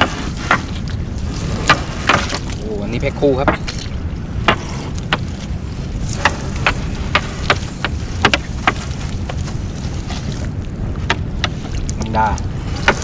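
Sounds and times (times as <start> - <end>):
low rumble aboard boat: 0.0 - 13.0.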